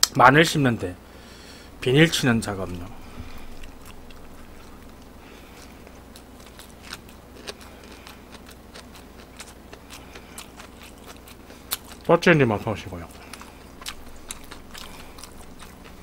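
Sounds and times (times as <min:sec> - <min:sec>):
steady low hum: 0:00.0 - 0:16.0
person chewing food: 0:02.5 - 0:12.1, 0:13.0 - 0:16.0.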